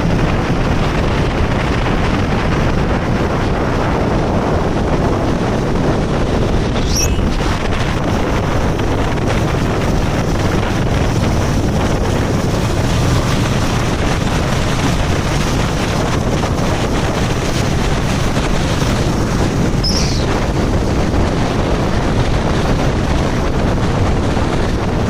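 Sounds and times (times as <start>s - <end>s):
vehicle and road noise: 0.0s - 25.0s
wind buffeting microphone: 0.0s - 25.0s
high squeak falling in pitch: 6.8s - 7.5s, 19.8s - 20.3s.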